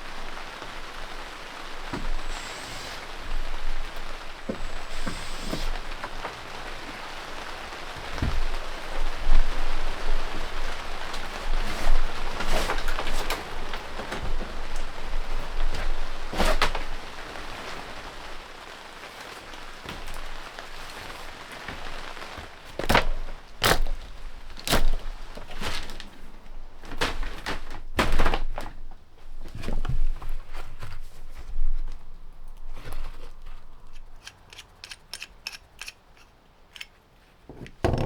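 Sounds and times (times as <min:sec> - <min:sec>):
steady hiss: 0:00.0 - 0:22.7
sharp knocks and thunks: 0:37.5 - 0:38.0.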